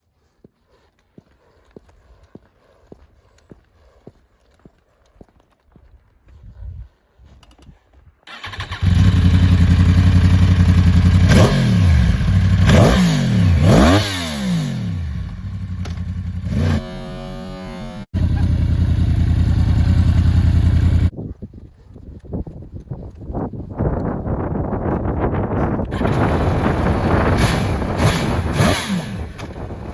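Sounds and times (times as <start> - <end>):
motorcycle engine revving: 8.3 - 21.1, 25.9 - 29.9.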